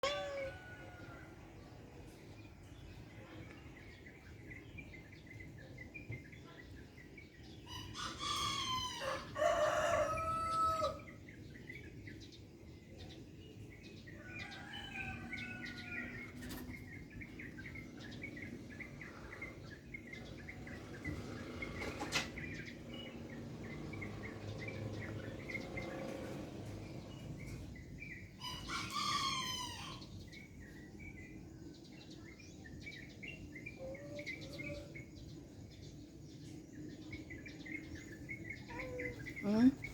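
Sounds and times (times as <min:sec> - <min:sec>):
rooster crowing: 0:00.0 - 0:01.4, 0:07.9 - 0:11.1, 0:14.2 - 0:16.3, 0:28.4 - 0:30.1.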